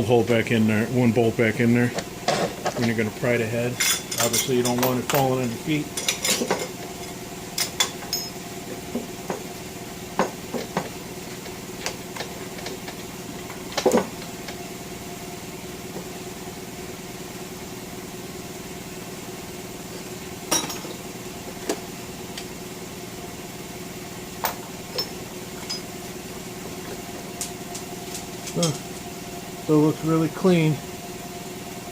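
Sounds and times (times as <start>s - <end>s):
air compressor motor humming: 0.0s - 31.9s
tools clanking against metal: 1.9s - 3.1s, 3.7s - 9.4s, 20.5s - 21.0s, 24.4s - 26.0s, 26.7s - 29.1s.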